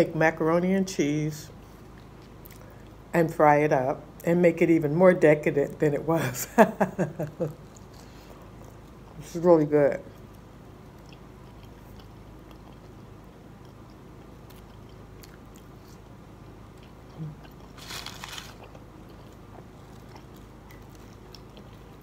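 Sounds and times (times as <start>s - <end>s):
person chewing fried food: 1.6s - 3.0s, 7.5s - 9.2s, 10.1s - 22.0s
loud crunch: 17.6s - 18.8s.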